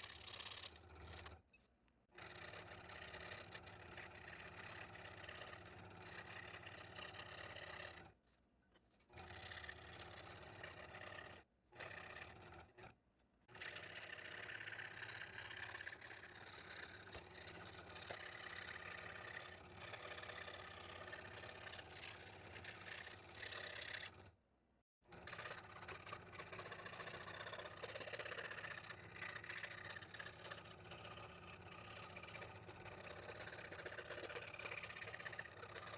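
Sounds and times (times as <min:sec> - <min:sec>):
scroll saw cutting thin wood: 0:00.0 - 0:01.4, 0:13.6 - 0:24.2, 0:25.2 - 0:35.9.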